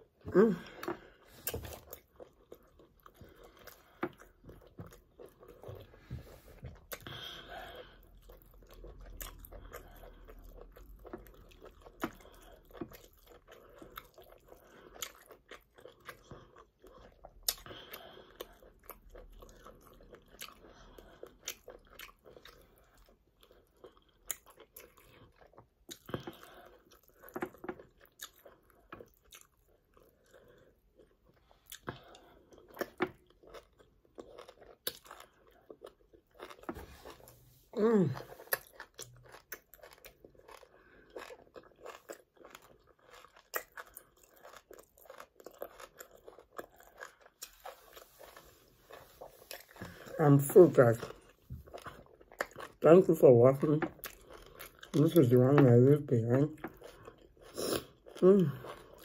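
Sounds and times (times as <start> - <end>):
wet chewing clicks and smacks: 8.0 - 36.7, 38.4 - 48.4, 51.0 - 52.8, 53.7 - 55.2.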